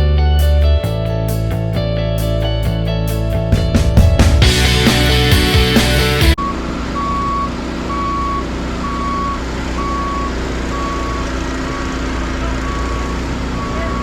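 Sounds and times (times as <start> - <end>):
music: 0.0 - 6.4
diesel engine running: 2.2 - 14.0
backup alarm beeping: 6.4 - 11.9, 12.5 - 14.0.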